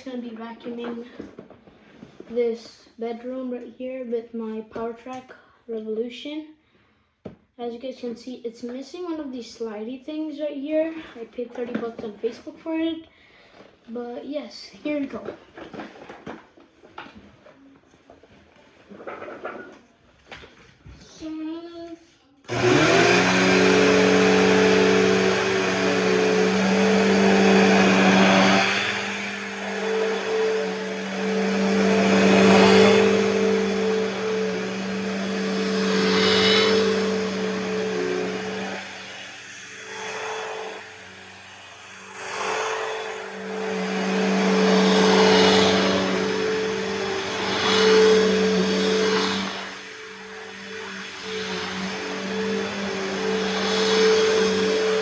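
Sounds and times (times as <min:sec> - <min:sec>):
vacuum cleaner running: 0:00.6 - 0:02.4, 0:15.6 - 0:17.2, 0:22.5 - 0:55.0.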